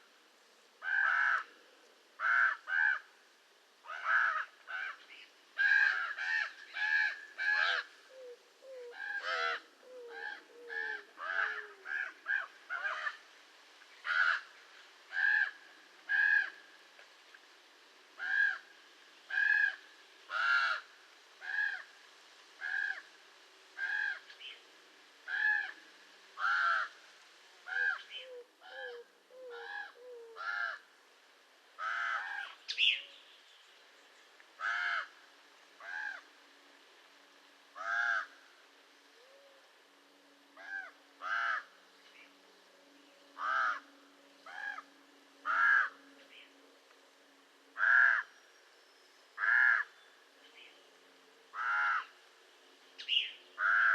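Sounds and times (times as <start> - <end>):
raven calling: 0.8 - 3.2, 3.8 - 13.3, 14.0 - 16.8, 18.2 - 18.7, 19.3 - 22.0, 22.6 - 23.2, 23.8 - 24.6, 25.2 - 25.8, 26.4 - 27.0, 27.6 - 30.9, 31.8 - 33.2, 34.6 - 35.2, 35.8 - 36.3, 37.7 - 39.8, 40.5 - 46.6, 47.7 - 48.5, 49.4 - 50.0, 51.5 - 52.2, 53.0 - 53.9.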